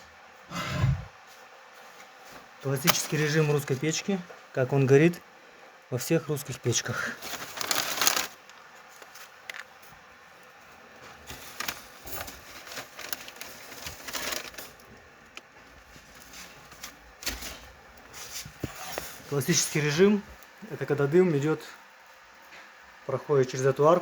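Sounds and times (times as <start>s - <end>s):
firewood crackling: 2.6s - 4.2s, 6.6s - 21.7s.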